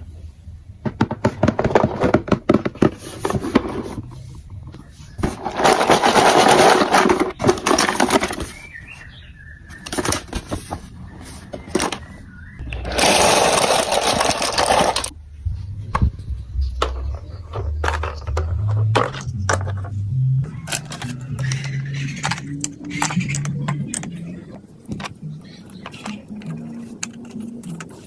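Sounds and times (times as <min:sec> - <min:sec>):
marbles rattling through plastic track: 0:05.4 - 0:08.4, 0:12.8 - 0:15.1
low hum changing pitch: 0:15.1 - 0:24.5.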